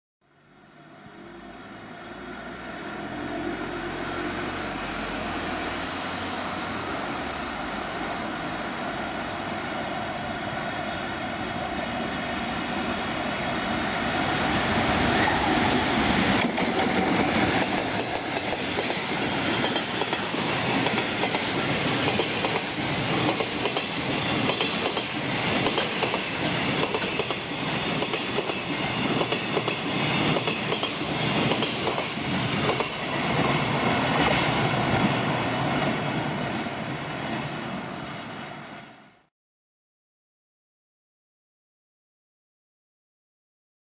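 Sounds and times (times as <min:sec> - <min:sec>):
electric locomotive passing: 0:00.3 - 0:39.3
wheels clattering on rails: 0:16.0 - 0:36.1.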